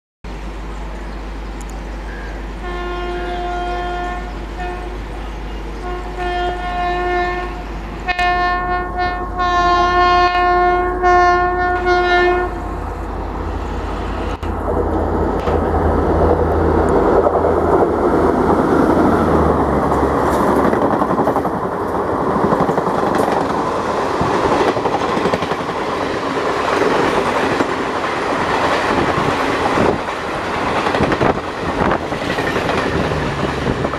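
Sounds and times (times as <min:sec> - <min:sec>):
train passing with wheel clatter: 0:00.3 - 0:33.9
locomotive horn blasts: 0:02.6 - 0:05.1, 0:05.8 - 0:12.6.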